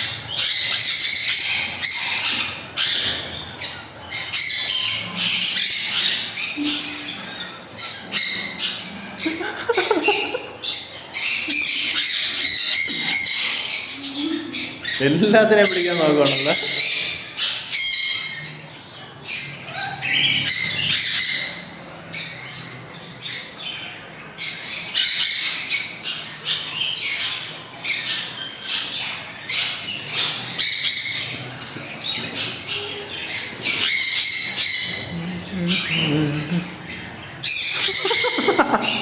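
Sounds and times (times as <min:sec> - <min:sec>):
parrots squawking and chirping: 0:00.0 - 0:39.0.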